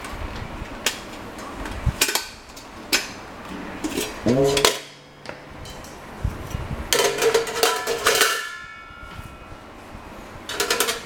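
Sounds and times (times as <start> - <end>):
metallic clanks ringing: 3.9 - 11.0.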